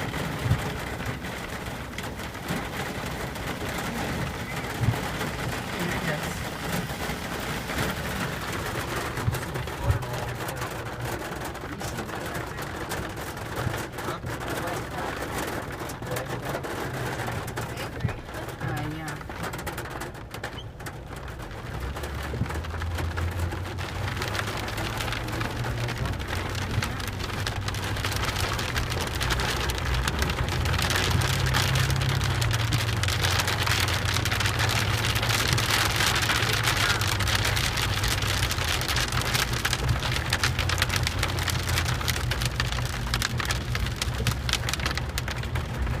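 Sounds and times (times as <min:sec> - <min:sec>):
heavy rain pelting down: 0:00.0 - 0:46.0
low rumble: 0:21.9 - 0:46.0.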